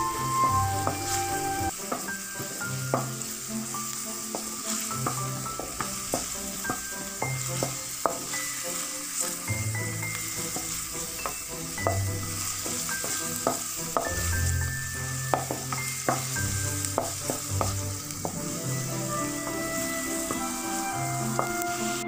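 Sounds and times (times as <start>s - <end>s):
onions sizzling in oil: 0.0s - 22.0s
spatula knocking and scraping pan: 1.8s - 3.2s, 4.3s - 8.6s, 10.1s - 18.6s, 20.2s - 20.6s, 21.2s - 21.6s.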